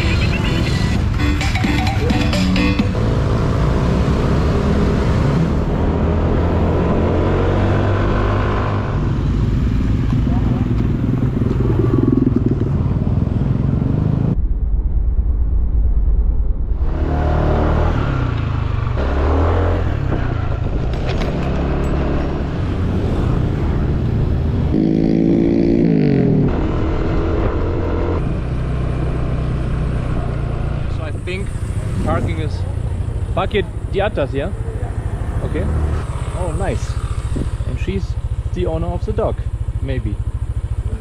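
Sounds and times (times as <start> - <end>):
road and wind noise: 0.0 - 41.0
motorcycle engine running: 8.1 - 14.4, 18.2 - 41.0.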